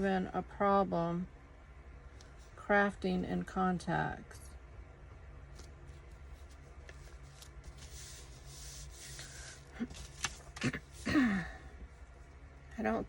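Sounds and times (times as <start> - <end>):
low steady hum: 0.0 - 13.0
paper rustling: 5.5 - 11.1.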